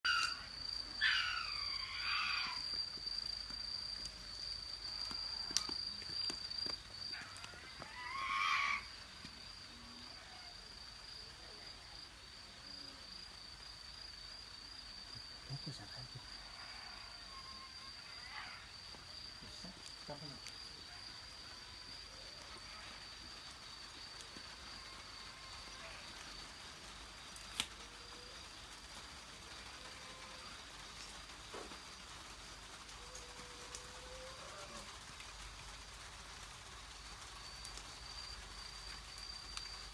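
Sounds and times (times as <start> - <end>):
insect trill: 0.0 - 39.9
animal cry: 0.1 - 2.8, 7.2 - 8.9, 16.5 - 18.7.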